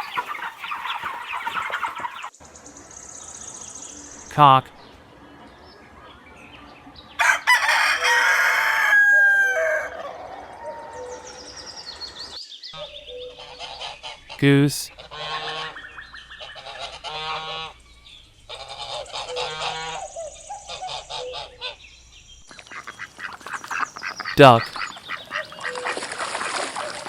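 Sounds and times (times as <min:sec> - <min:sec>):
rooster crowing: 0:07.2 - 0:11.9
goose honking: 0:15.0 - 0:17.8, 0:18.5 - 0:21.8.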